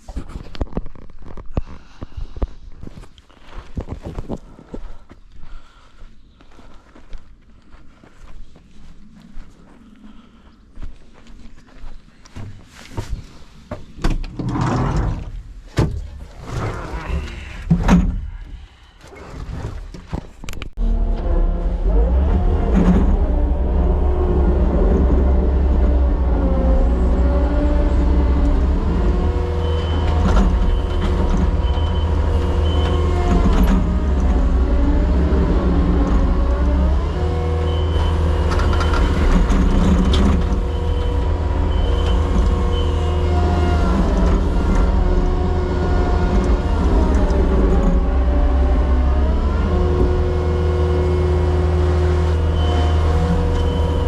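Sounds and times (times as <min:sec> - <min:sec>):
diesel engine running: 0:20.8 - 0:54.0.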